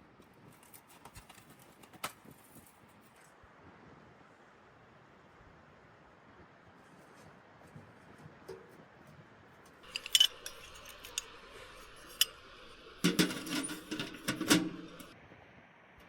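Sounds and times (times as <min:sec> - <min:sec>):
kitchenware clattering: 0:09.8 - 0:15.2
kitchenware clinking: 0:09.8 - 0:15.2.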